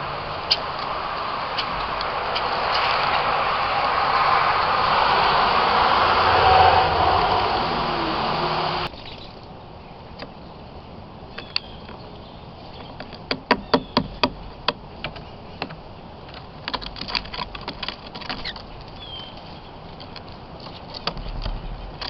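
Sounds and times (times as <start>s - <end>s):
loud steady noise: 0.0s - 8.9s
birds pecking taps: 12.7s - 22.0s
high bird chirps: 13.6s - 14.2s, 18.4s - 19.8s.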